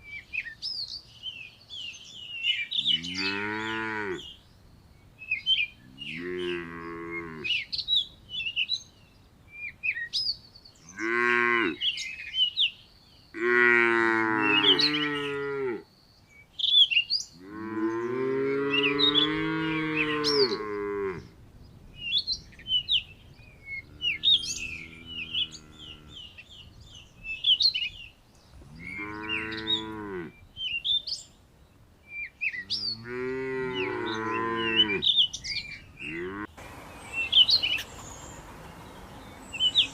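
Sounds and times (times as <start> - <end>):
small birds chirping: 0.0 - 39.9
cow mooing: 2.8 - 4.3, 5.9 - 7.5, 11.0 - 11.8, 13.4 - 15.8, 17.4 - 21.3, 23.8 - 26.3, 28.6 - 30.3, 33.0 - 35.1, 36.0 - 36.6.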